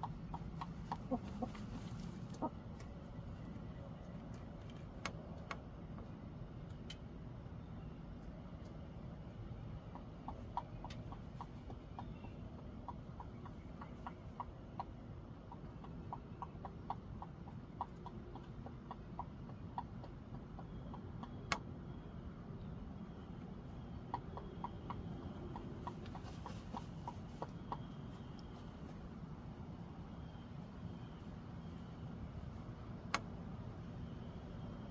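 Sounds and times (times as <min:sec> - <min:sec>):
chickens clucking softly: 0:00.0 - 0:05.2, 0:07.8 - 0:33.2.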